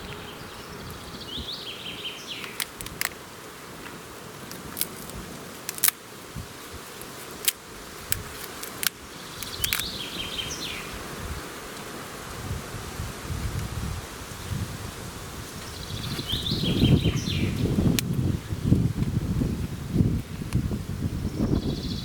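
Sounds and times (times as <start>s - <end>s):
songbird singing: 0.0s - 2.9s, 9.1s - 11.1s, 15.6s - 18.8s, 21.2s - 22.0s
outdoor background hiss: 0.0s - 22.0s
sharp clicks: 7.4s - 9.9s.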